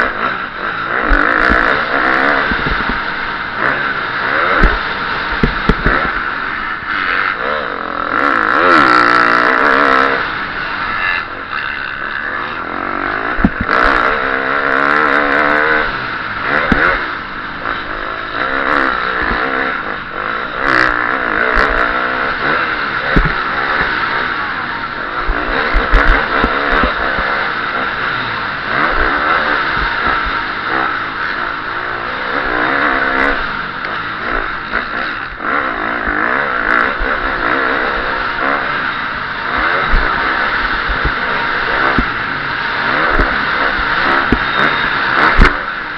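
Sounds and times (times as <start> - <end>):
motorcycle engine revving: 0.0 - 45.9
wind on microphone: 2.3 - 3.1, 5.4 - 6.2, 13.3 - 14.0, 23.1 - 23.8, 25.1 - 27.4, 39.5 - 42.2
motorcycle knocks over rough ground: 4.6 - 6.2.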